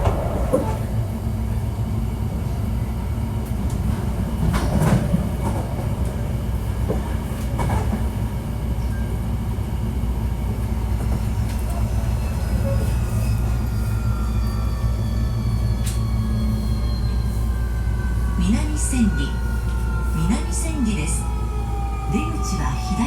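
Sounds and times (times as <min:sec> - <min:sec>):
train wheels rumbling on rails: 0:00.0 - 0:23.0
rail joint clicks: 0:03.4 - 0:06.2, 0:06.8 - 0:08.2, 0:15.5 - 0:16.2
train motor whine: 0:11.4 - 0:23.0.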